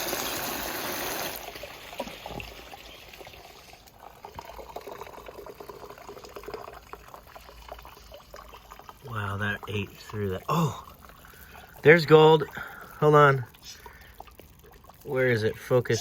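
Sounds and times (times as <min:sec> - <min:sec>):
water rushing through sluice: 0:00.0 - 0:03.8
water trickling and dripping: 0:00.0 - 0:16.0.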